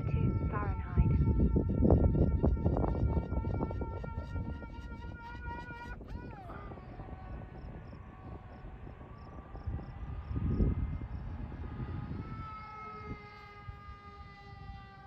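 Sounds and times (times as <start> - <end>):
wind buffeting microphone: 0.0 - 15.0
model plane motor whining: 9.9 - 15.0.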